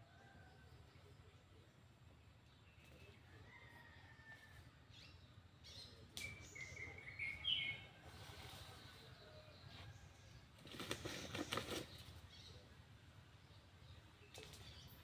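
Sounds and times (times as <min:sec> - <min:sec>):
bird chirps: 0:05.1 - 0:10.0.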